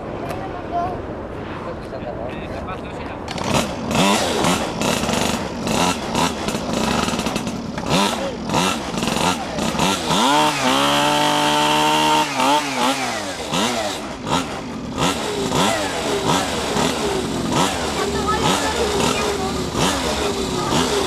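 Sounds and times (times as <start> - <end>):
minibike engines revving: 3.2 - 21.0.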